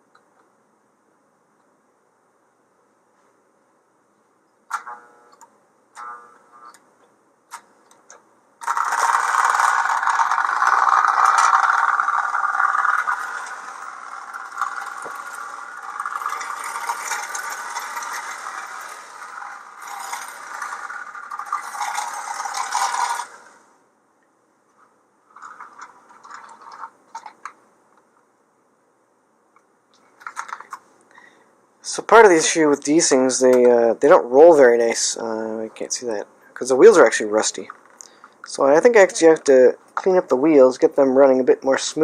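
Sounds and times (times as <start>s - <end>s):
wheels rattling on metal rails: 8.6s - 23.6s, 25.3s - 27.5s
toy train motor whirring: 8.6s - 23.7s, 25.3s - 27.6s.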